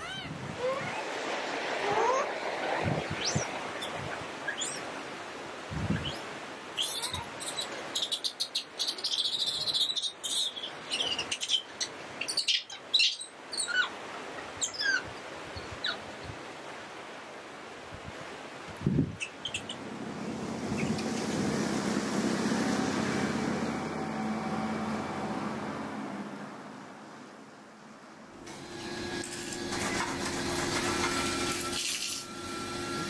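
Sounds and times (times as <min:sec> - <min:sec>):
small birds chirping: 0:05.9 - 0:13.9, 0:19.1 - 0:19.8.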